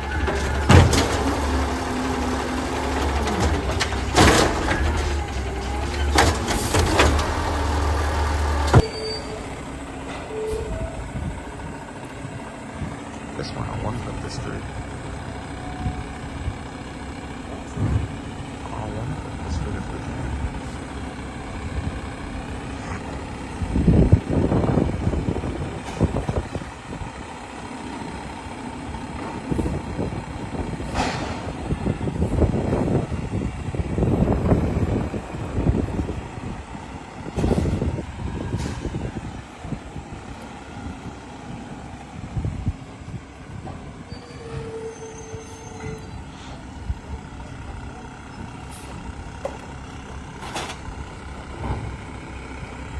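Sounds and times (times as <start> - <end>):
steady squeal: 0.0 - 11.7, 44.0 - 46.6
garbage truck engine rumbling: 0.0 - 52.9.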